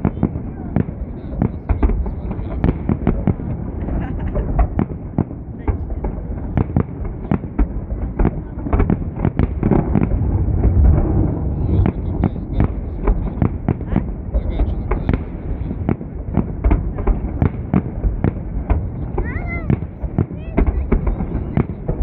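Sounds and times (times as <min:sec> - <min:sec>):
continuous low rumble: 0:00.0 - 0:22.0
fireworks bangs and crackles: 0:00.0 - 0:22.0.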